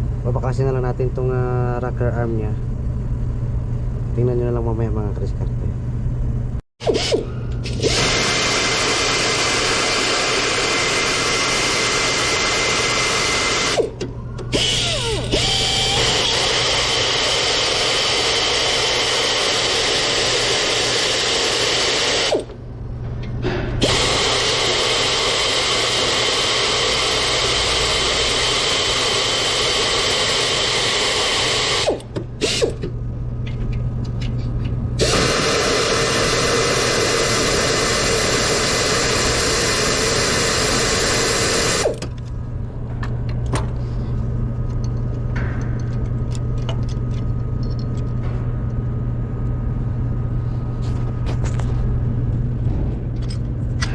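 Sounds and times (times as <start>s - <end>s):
power tool running: 6.8s - 22.6s, 23.8s - 33.0s, 35.0s - 42.2s.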